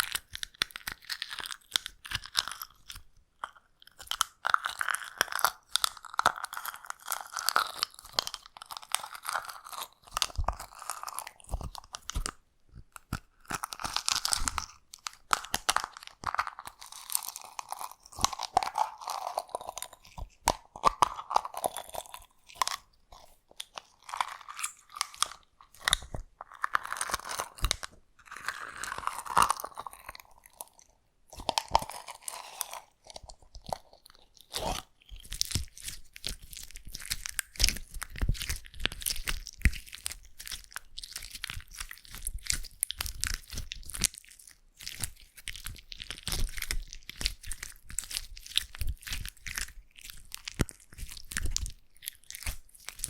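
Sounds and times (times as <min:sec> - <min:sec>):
slime squishing and stretching: 0:00.0 - 0:53.0
slime crackling and popping clicks: 0:44.8 - 0:53.0.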